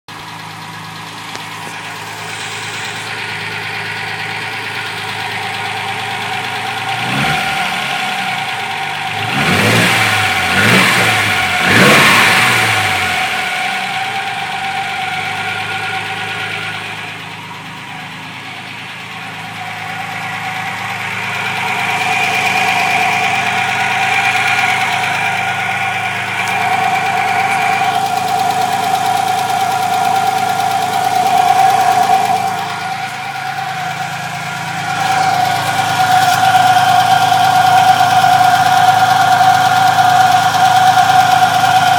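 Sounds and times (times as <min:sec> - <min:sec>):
car engine idling: 0:00.0 - 0:41.9
high-pitched whine: 0:01.4 - 0:04.4, 0:11.0 - 0:41.3.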